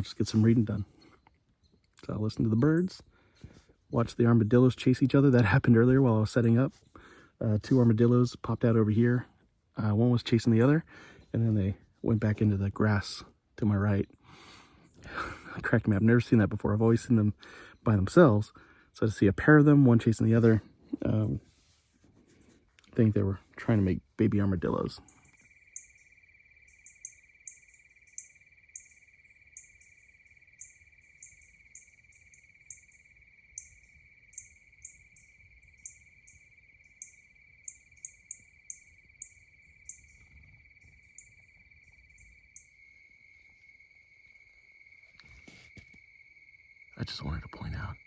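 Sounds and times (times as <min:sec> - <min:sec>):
insect trill: 0:00.0 - 0:03.3, 0:03.9 - 0:21.4, 0:23.0 - 0:48.0
brief rustle: 0:45.0 - 0:46.0.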